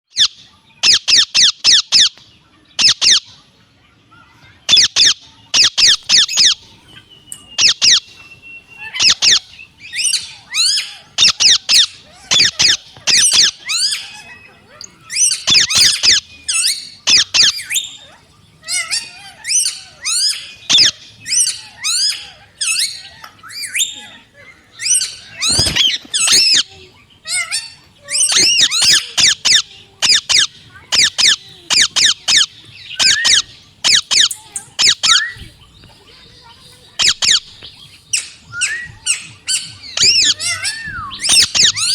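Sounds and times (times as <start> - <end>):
parrot squawking: 2.8 - 3.3, 4.7 - 35.5, 36.4 - 41.9
parrot whistle: 7.2 - 18.0, 27.3 - 35.5, 37.0 - 37.5, 38.1 - 41.9.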